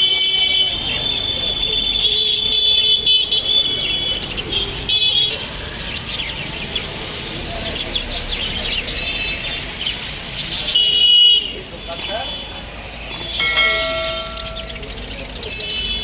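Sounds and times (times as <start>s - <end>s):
street traffic noise: 0.0s - 16.0s
caged birds chirping: 0.7s - 16.0s
high steady tone: 13.1s - 15.1s.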